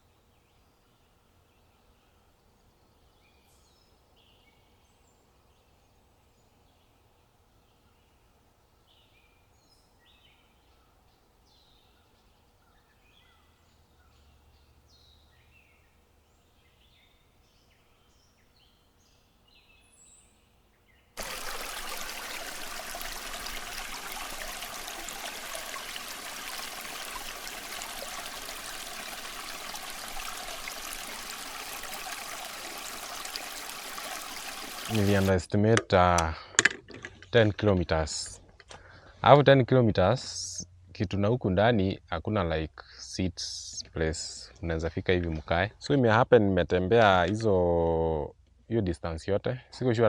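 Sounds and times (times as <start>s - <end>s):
faint birds chirping: 0.0s - 36.5s
flowing water rushing: 21.2s - 35.4s.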